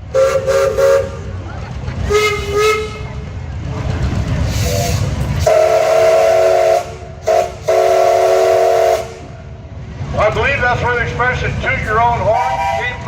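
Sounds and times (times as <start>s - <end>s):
low rumble: 0.0s - 5.5s
steam whistles blowing: 0.1s - 1.3s, 2.1s - 3.2s, 4.5s - 9.3s, 12.3s - 13.0s.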